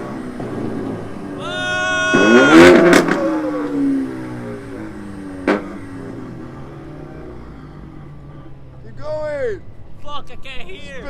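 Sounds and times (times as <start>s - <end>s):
car engine revving hard: 0.0s - 8.5s
exhaust pops: 2.0s - 6.3s.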